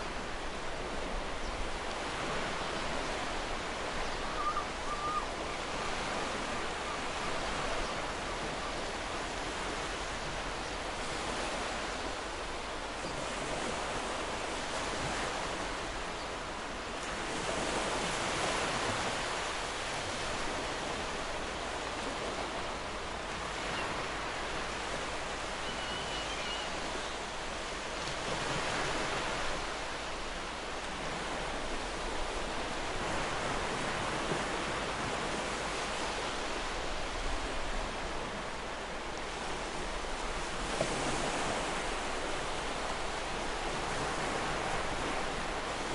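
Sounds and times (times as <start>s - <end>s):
ocean waves breaking on beach: 0.0s - 45.9s.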